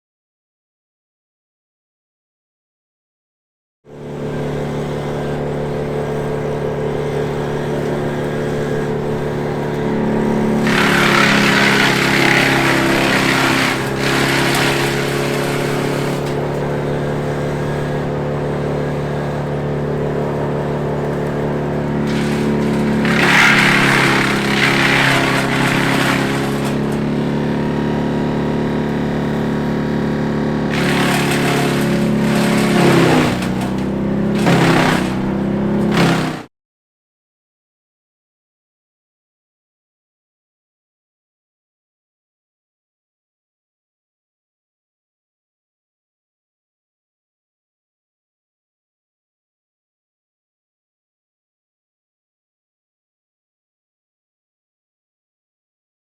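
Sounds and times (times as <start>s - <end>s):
brush chipper running: 3.9s - 36.5s
branches being shredded: 10.5s - 16.7s, 20.0s - 28.8s, 29.7s - 36.5s.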